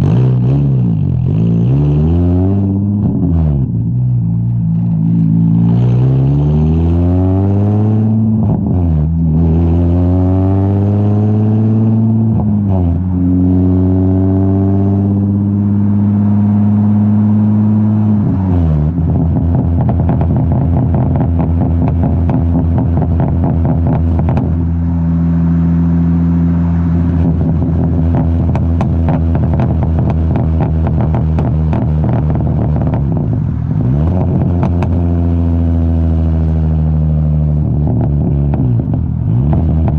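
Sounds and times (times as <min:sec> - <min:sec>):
car engine accelerating: 0:00.0 - 0:39.9
exhaust crackle: 0:15.2 - 0:39.9.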